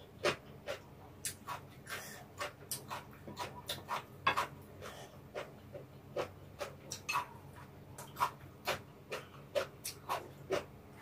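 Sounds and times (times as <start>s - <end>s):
chewing and mouth smacking: 5.4s - 10.7s.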